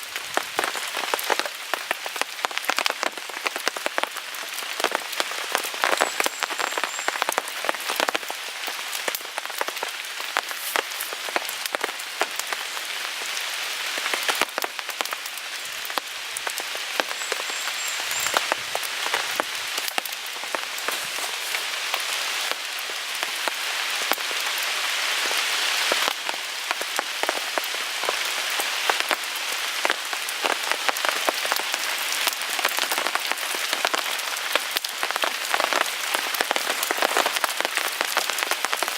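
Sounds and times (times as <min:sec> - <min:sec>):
rain pattering on a tarp: 0:00.0 - 0:38.9
wood fire crackling: 0:00.1 - 0:29.2.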